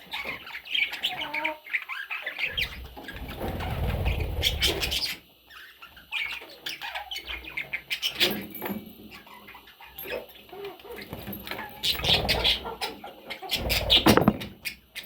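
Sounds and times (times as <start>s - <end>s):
budgerigars chirping: 0.1s - 8.4s, 11.8s - 15.0s
wings flapping: 2.6s - 5.0s, 13.6s - 14.5s.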